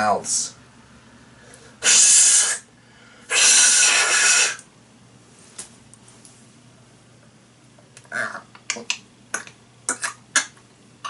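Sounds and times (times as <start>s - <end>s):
man making breathy hisses: 1.8s - 4.6s
small mouth click: 8.0s - 10.6s.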